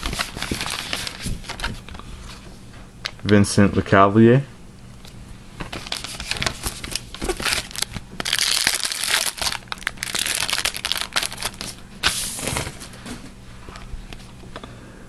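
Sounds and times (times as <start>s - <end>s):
wrapper crinkling and tearing: 0.0s - 1.9s, 5.6s - 12.8s.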